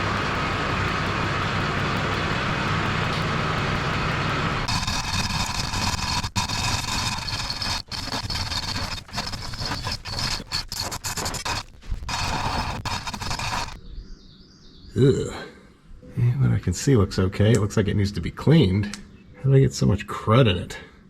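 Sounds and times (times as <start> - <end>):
engine running: 0.0 - 13.8.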